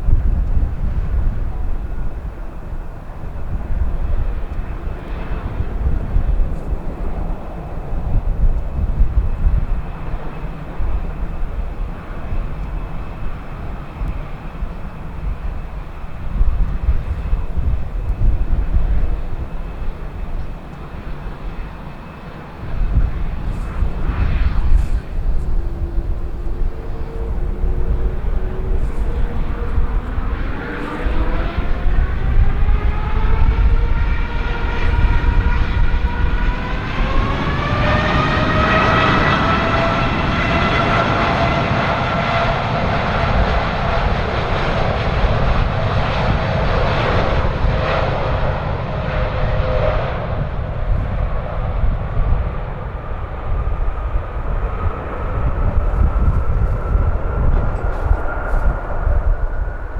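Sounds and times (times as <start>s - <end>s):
wind buffeting microphone: 0.0s - 59.9s
jet engines spooling up: 9.4s - 59.9s.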